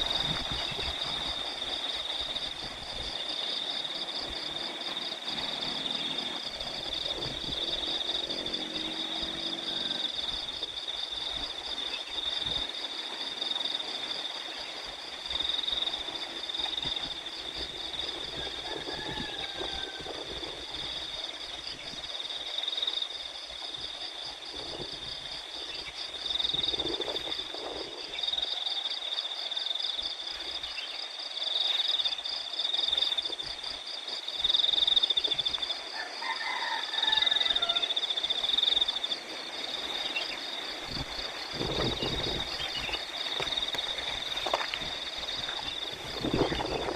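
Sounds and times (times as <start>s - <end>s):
wind rumbling on microphone: 0.0s - 22.3s, 23.5s - 28.5s, 38.4s - 46.9s
cricket chorus chirring: 0.0s - 46.9s.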